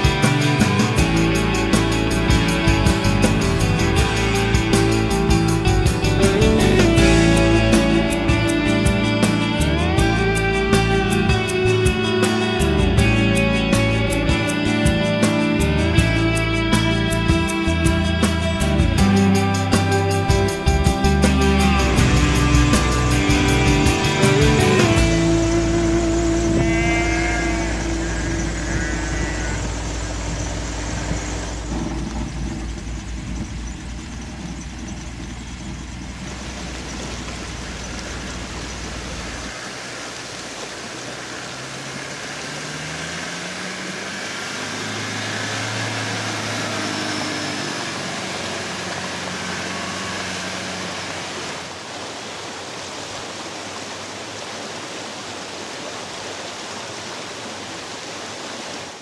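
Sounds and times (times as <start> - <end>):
tyre noise: 0.0 - 39.6
off-road vehicle engine: 0.0 - 59.0
water splashing: 0.0 - 59.0.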